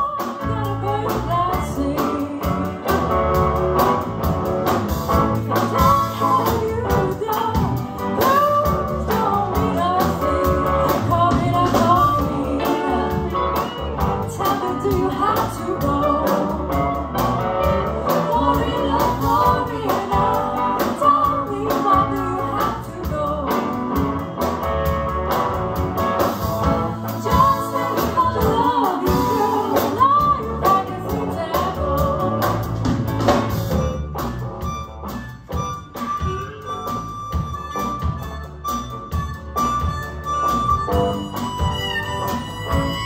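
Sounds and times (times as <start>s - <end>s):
guitar accompaniment: 0.0s - 43.0s
person singing: 5.4s - 24.0s, 27.1s - 32.9s, 36.0s - 37.9s.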